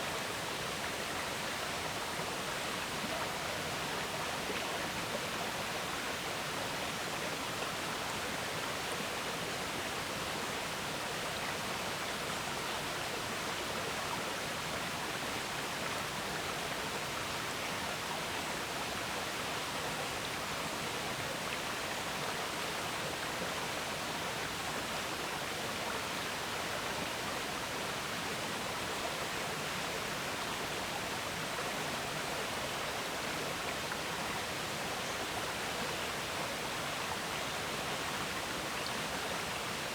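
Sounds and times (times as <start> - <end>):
river water flowing: 8.6 - 39.9.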